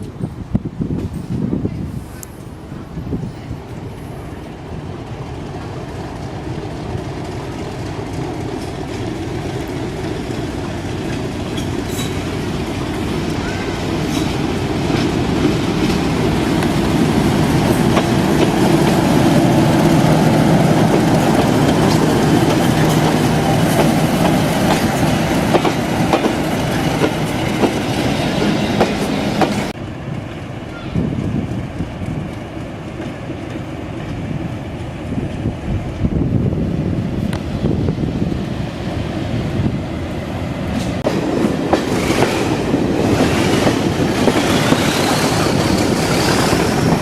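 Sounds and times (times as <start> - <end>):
diesel train engine drone: 2.2 - 47.0
wheels clicking on rails: 7.0 - 29.8.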